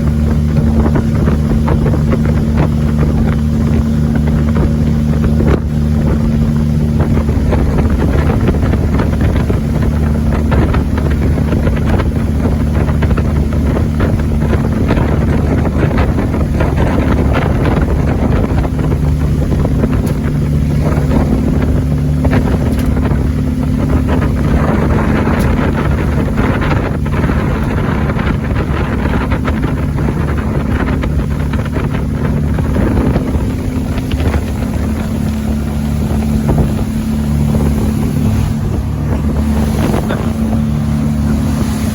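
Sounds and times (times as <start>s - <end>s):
boat engine running: 0.0s - 41.9s
wind noise on microphone: 0.0s - 41.9s.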